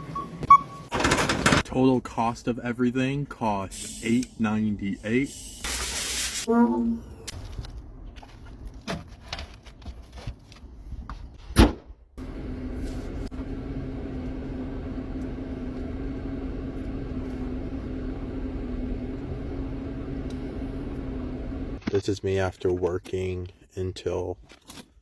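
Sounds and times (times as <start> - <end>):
car engine humming: 12.2 - 21.8.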